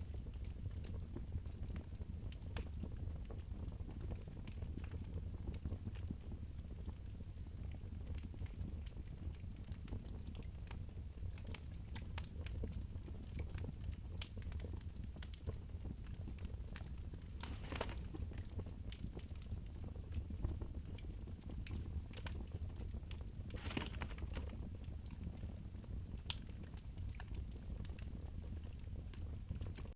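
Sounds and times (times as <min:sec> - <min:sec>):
wood fire crackling: 0:00.0 - 0:29.9
fire hissing flare-ups: 0:23.5 - 0:24.6.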